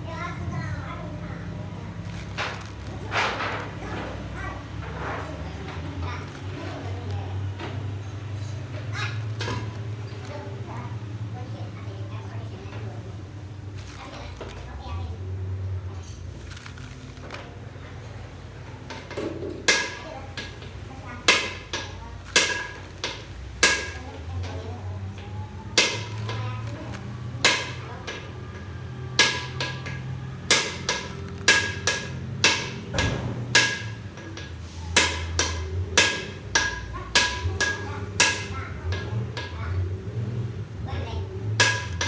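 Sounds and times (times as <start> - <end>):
hammer striking metal: 29.2 - 38.5.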